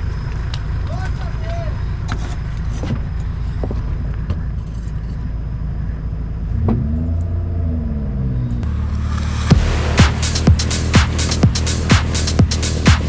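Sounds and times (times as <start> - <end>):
vehicle engine revving: 6.4 - 13.0.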